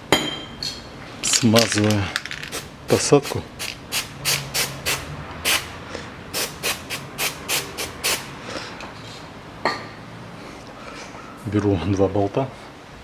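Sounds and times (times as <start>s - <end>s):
quick rubbing strokes: 2.5s - 5.7s, 6.4s - 8.4s.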